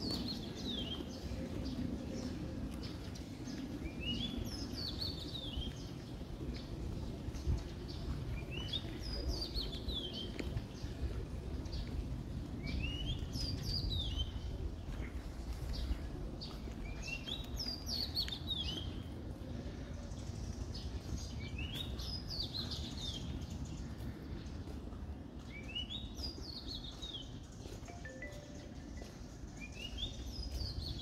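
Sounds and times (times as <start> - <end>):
songbird singing: 0.0 - 19.2, 25.4 - 31.0
steady low rumble: 0.0 - 31.0.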